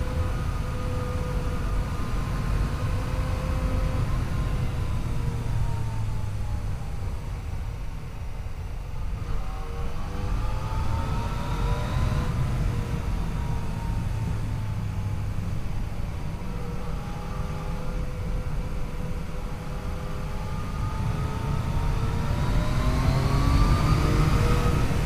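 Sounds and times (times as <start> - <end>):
motorcycle engine revving: 20.6 - 25.0.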